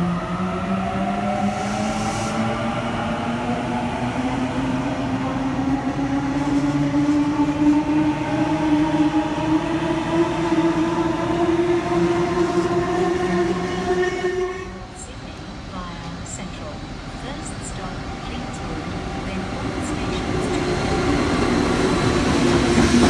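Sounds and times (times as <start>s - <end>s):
train running rumble: 5.1s - 23.0s.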